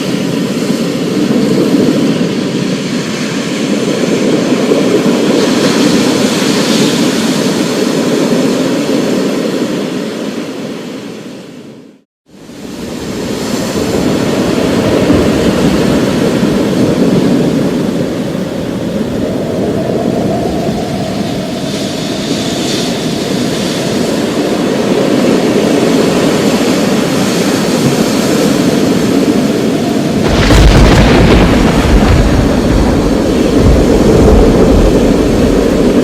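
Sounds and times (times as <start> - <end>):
rolling thunder: 13.0 - 23.4, 27.5 - 36.0.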